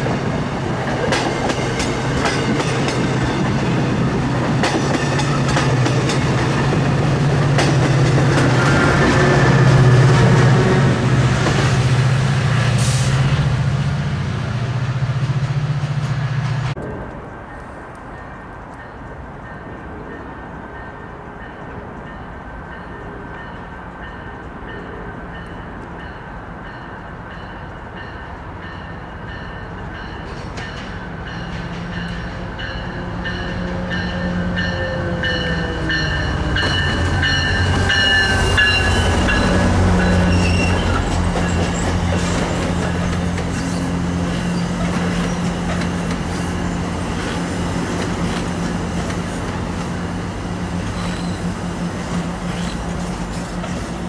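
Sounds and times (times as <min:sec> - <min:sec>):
train wheels clicking: 0:00.0 - 0:12.0, 0:29.8 - 0:54.0
train passing with whine and rumble: 0:00.0 - 0:54.0.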